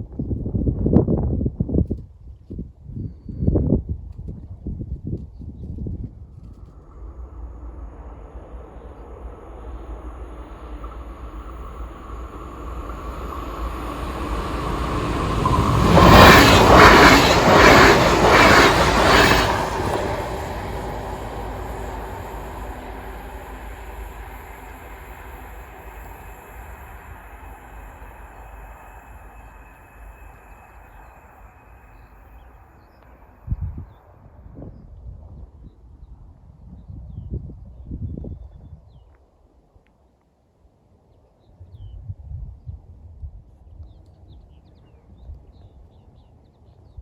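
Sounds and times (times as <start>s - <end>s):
train wheels clattering over rails: 10.6s - 28.7s.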